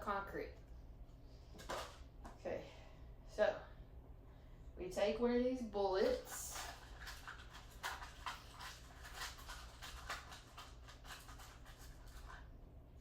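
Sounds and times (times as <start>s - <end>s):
low steady hum: 0.0s - 13.0s
small clicks and rattles: 6.3s - 12.5s.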